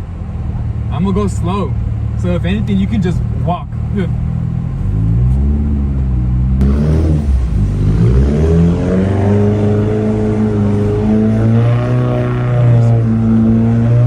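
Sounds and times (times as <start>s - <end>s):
car engine revving: 4.0s - 14.0s.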